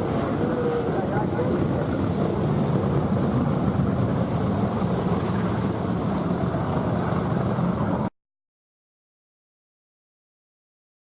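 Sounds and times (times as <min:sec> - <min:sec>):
race car engines rumbling: 0:00.0 - 0:08.1.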